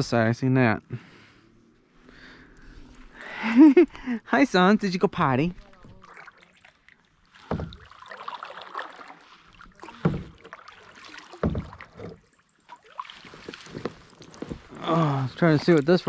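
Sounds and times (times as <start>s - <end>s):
water splashing around kayak: 5.2s - 16.0s
low hollow knocks: 7.4s - 8.0s, 11.4s - 12.2s.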